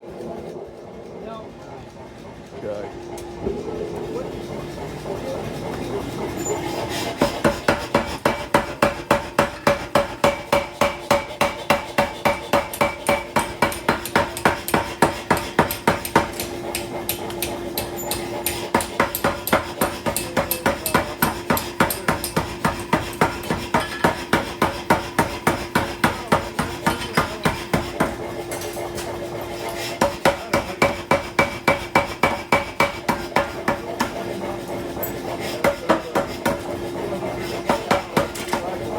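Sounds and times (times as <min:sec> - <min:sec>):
hammer striking metal on anvil: 0:07.2 - 0:28.7, 0:30.0 - 0:34.2, 0:35.0 - 0:36.7, 0:37.6 - 0:38.7.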